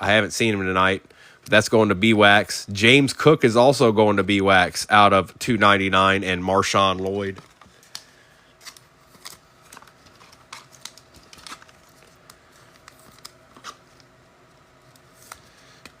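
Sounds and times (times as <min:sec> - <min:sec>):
trading cards clicking and rustling: 0:06.9 - 0:14.2.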